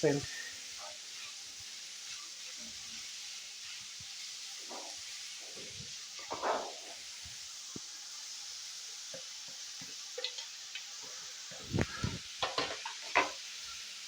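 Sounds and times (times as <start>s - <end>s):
vegetables sizzling in a pan: 0.0s - 14.0s
spoon scraping a pan: 0.3s - 7.2s, 10.1s - 13.8s.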